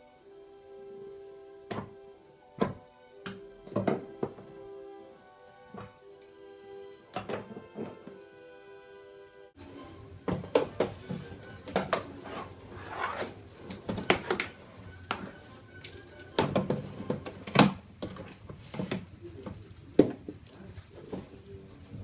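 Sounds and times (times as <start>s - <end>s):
hardware knocking and clicking: 2.6s - 4.5s, 7.1s - 8.2s, 10.3s - 12.1s, 13.6s - 20.5s.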